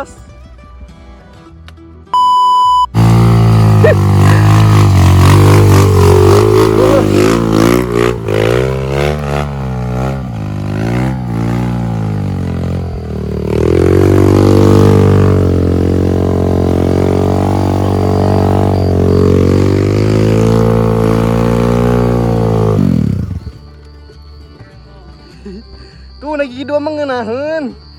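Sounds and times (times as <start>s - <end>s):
motorcycle engine revving: 2.8s - 23.7s.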